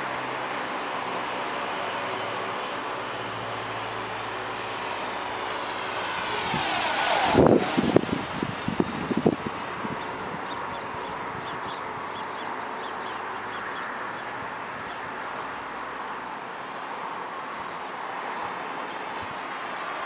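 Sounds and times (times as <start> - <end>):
small bird chirping: 9.9 - 16.2.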